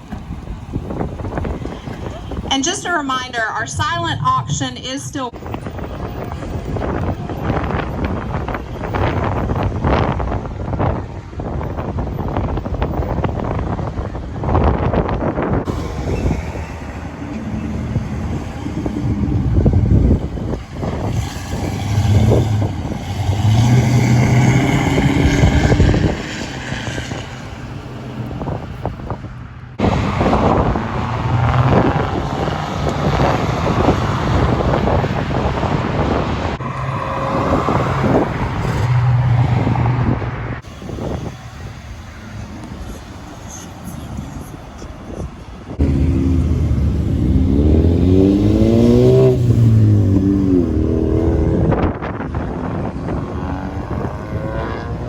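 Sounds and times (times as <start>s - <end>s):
car engine rumble: 0.0s - 55.0s
wind buffeting microphone: 0.0s - 55.0s.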